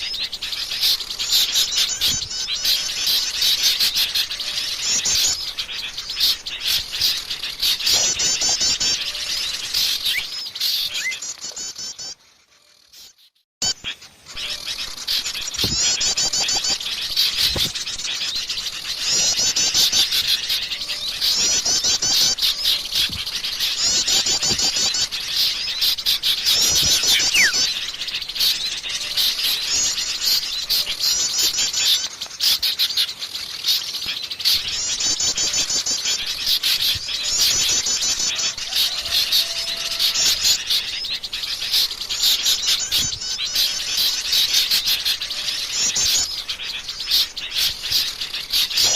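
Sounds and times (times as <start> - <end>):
songbirds chirping and twittering: 0.0 - 48.9
fast high bird trills: 13.6 - 32.1.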